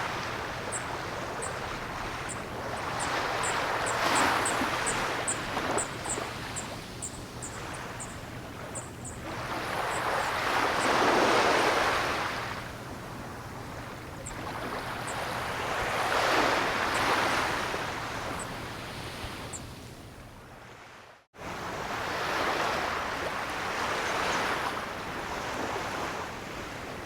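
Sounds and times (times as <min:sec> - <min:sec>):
ocean waves washing in: 0:00.0 - 0:19.5.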